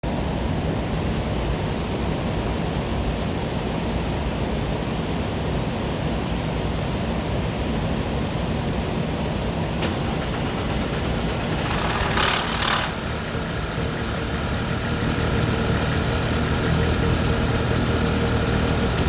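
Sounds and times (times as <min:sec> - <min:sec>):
car engine idling roughly: 0:09.8 - 0:19.0.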